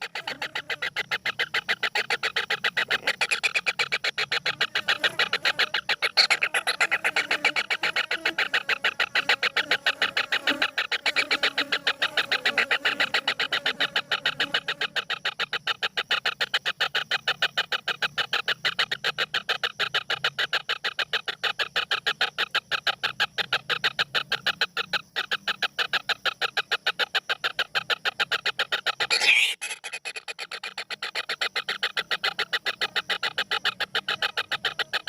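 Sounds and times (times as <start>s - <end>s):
bird calling short sharp notes: 29.0s - 30.5s.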